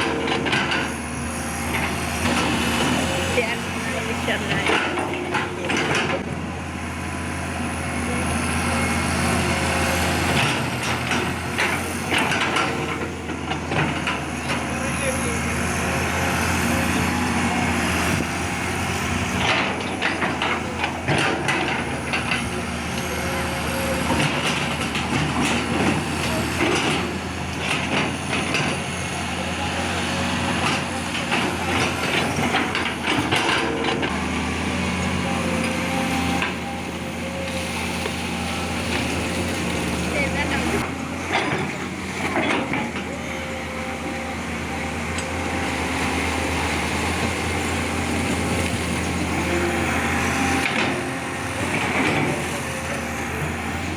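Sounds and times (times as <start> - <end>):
excavator engine running: 0.0 - 53.9.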